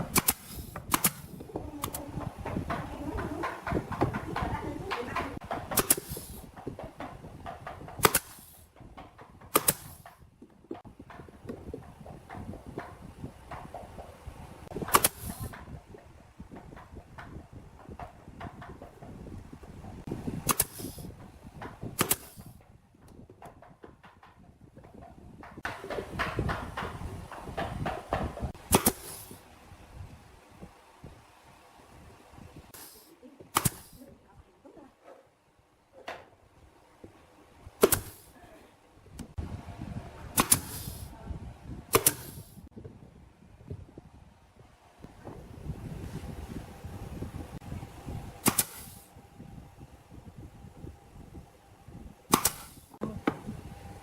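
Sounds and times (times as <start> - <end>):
loud sharp cracks: 0.0 - 2.0, 5.7 - 6.3, 8.0 - 8.5, 9.5 - 10.1, 20.4 - 21.0, 22.0 - 22.5, 28.7 - 29.4, 33.5 - 34.0, 37.8 - 38.3, 40.4 - 41.0, 48.4 - 49.1, 52.3 - 52.9
short hiss: 0.1 - 1.4, 5.8 - 6.5, 8.0 - 8.7, 14.9 - 15.6, 20.5 - 21.1, 28.7 - 29.4, 32.7 - 34.1, 37.8 - 38.4, 40.4 - 41.1, 41.9 - 42.6, 48.4 - 49.1
sharp shot-like strikes: 5.7 - 6.4, 9.5 - 10.0, 20.4 - 21.0, 22.0 - 22.5, 28.7 - 29.4, 32.8 - 34.0, 37.8 - 38.3, 40.4 - 41.0, 48.4 - 49.0, 52.3 - 52.8.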